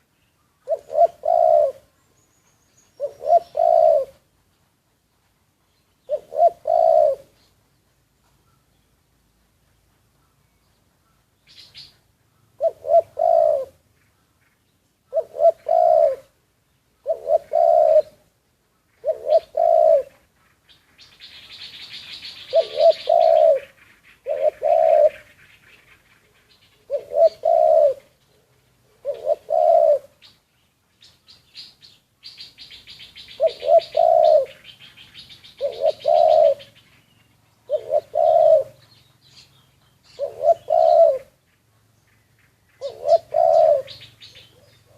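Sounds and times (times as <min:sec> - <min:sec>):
small birds chirping: 0:00.0 - 0:44.9
dove cooing: 0:00.6 - 0:02.0, 0:02.8 - 0:04.3, 0:06.0 - 0:07.5, 0:11.6 - 0:13.8, 0:15.1 - 0:16.4, 0:17.0 - 0:18.3, 0:19.0 - 0:20.3, 0:21.3 - 0:30.3, 0:32.4 - 0:41.4, 0:42.8 - 0:44.9.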